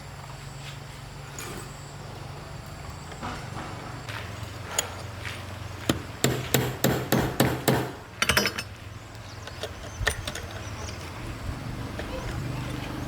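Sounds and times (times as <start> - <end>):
hammer blows: 5.8 - 8.6.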